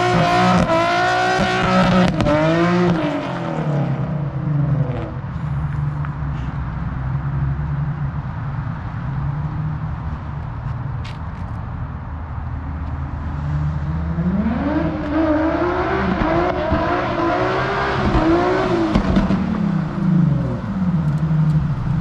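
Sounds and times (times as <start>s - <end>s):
car engine revving: 0.0s - 5.2s, 13.2s - 22.0s.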